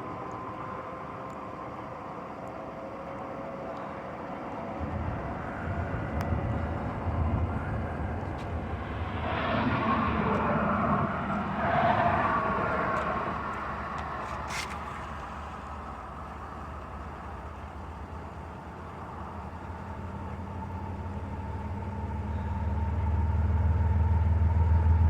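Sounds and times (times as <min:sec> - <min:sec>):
locomotive engine rumble: 0:00.0 - 0:25.0
train wheel noise: 0:00.0 - 0:25.0.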